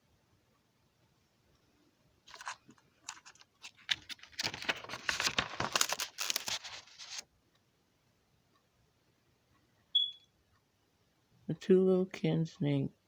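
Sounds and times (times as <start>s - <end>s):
crackling and rustling: 2.2s - 7.3s.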